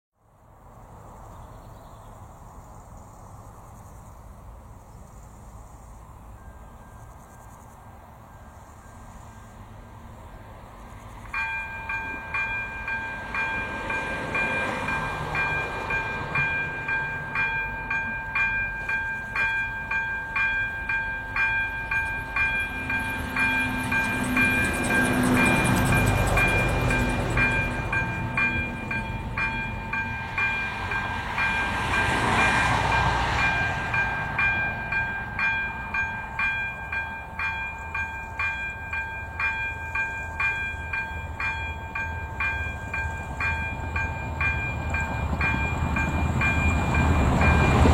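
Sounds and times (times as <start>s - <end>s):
passing vehicle rumble: 2.0s - 47.9s
crossing bell multi-tone chime: 11.4s - 47.9s.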